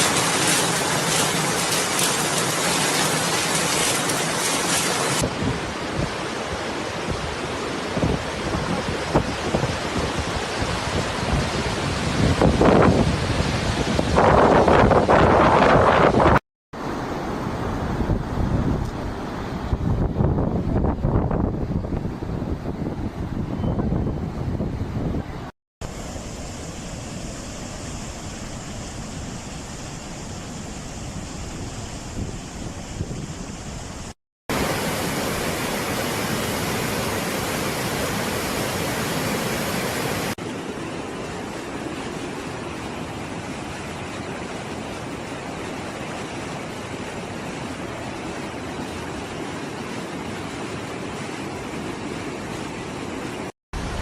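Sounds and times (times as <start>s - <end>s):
heavy rain hiss: 0.0s - 5.4s, 34.5s - 40.4s
steady rushing noise: 0.0s - 10.3s
wind rumbling on microphone: 0.0s - 25.5s, 26.8s - 40.4s
wind buffeting microphone: 17.9s - 25.5s.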